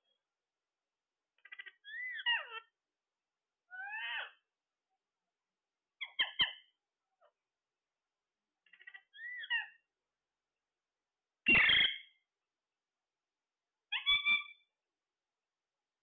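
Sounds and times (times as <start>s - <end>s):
parrot calling and squawking: 1.4s - 2.7s, 3.7s - 4.4s, 6.0s - 6.7s, 8.6s - 9.8s, 11.5s - 12.2s, 13.9s - 14.7s.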